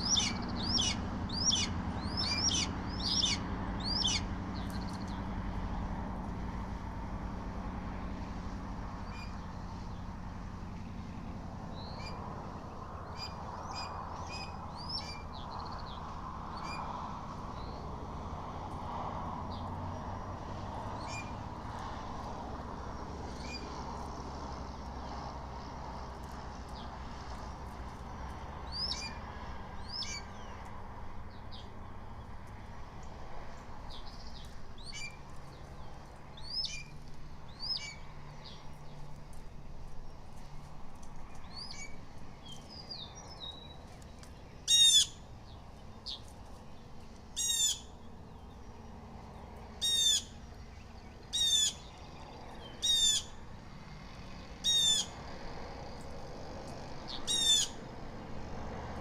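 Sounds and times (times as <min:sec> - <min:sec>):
blue jays harsh calls: 0:00.0 - 0:04.3, 0:44.7 - 0:45.2, 0:54.6 - 0:55.2, 0:57.3 - 0:57.8.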